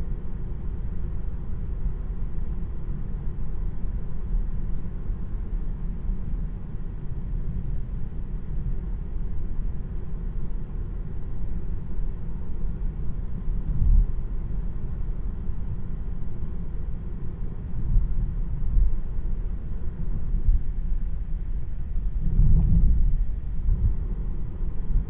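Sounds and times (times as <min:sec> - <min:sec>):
road and tyre noise inside car: 0:00.0 - 0:25.0.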